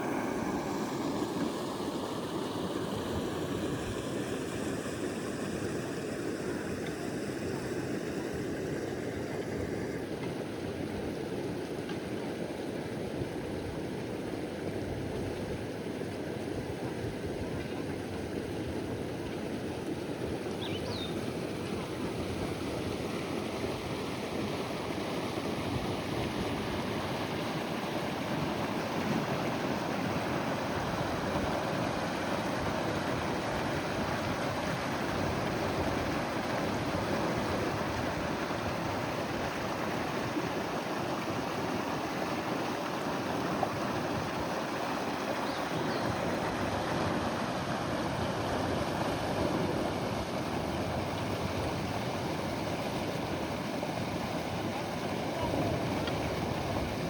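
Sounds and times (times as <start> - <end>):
rushing river water: 0.0 - 57.0
faint high chirp: 20.6 - 21.2.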